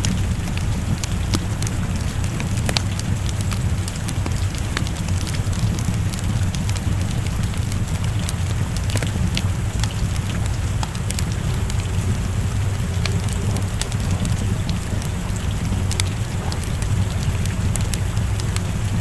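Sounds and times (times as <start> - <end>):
rain: 0.0 - 19.0
wood fire crackling: 0.0 - 19.0
low rumble: 11.0 - 19.0.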